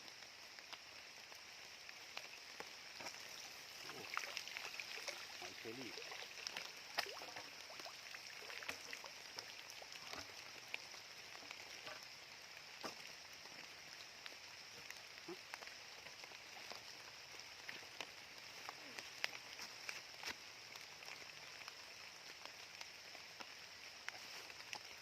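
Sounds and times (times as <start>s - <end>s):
light rain hissing: 0.0s - 25.0s
raindrops ticking: 0.0s - 25.0s.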